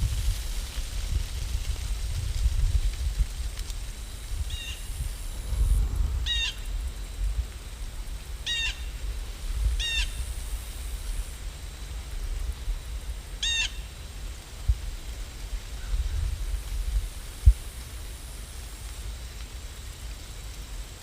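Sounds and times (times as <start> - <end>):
steady low rumble: 0.0 - 13.4.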